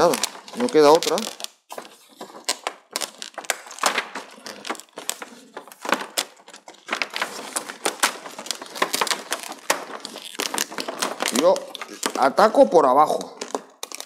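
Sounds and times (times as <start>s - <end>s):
plastic sheet crackling: 0.0s - 14.0s.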